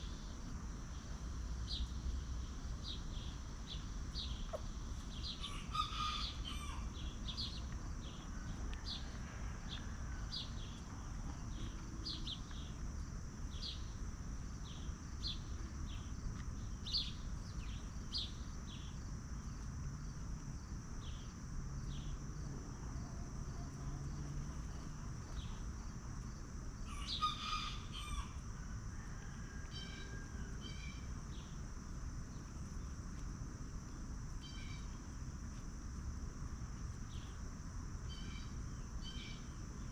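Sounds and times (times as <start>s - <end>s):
small birds chirping: 0.0s - 9.1s, 14.6s - 19.0s.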